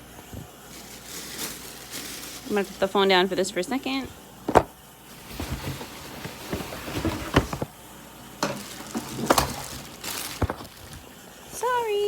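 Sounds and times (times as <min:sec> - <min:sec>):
quiet handling noise: 0:04.0 - 0:07.8, 0:08.4 - 0:11.2
objects knocking and clattering: 0:04.5 - 0:07.7, 0:08.4 - 0:11.1.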